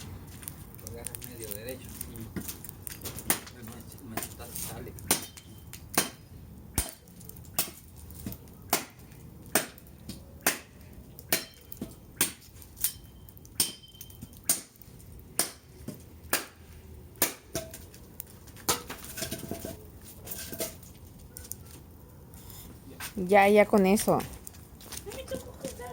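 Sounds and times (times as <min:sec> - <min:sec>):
machete chopping firewood: 0:03.0 - 0:03.6, 0:05.0 - 0:13.0, 0:13.6 - 0:14.8, 0:15.4 - 0:17.8.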